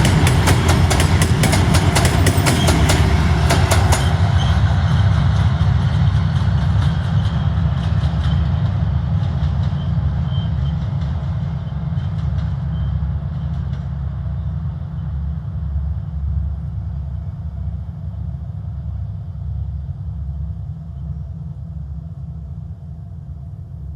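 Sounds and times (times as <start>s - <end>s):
wheels clicking over rail joints: 0.0s - 4.2s
diesel locomotive drone: 0.0s - 23.9s.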